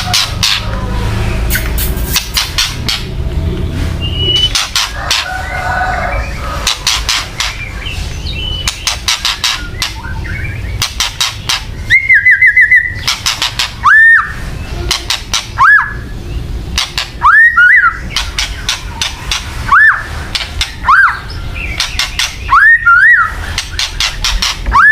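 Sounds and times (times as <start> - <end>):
bird ticking rattle: 1.5 - 3.2, 23.5 - 24.7
sharp upslurred bird whistles: 4.0 - 4.8, 11.8 - 16.1, 17.2 - 18.7, 20.7 - 24.9.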